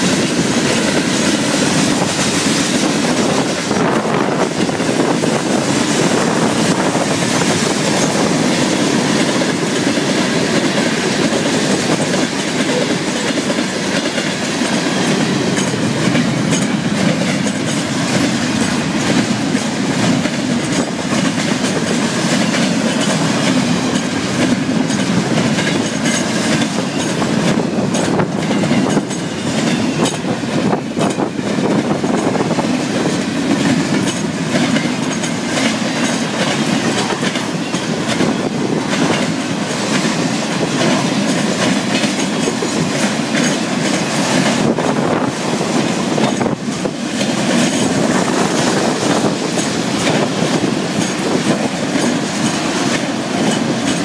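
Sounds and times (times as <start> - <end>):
freight train wheels rumbling: 0.0 - 54.0
wheels clicking over rail joints: 0.0 - 54.0.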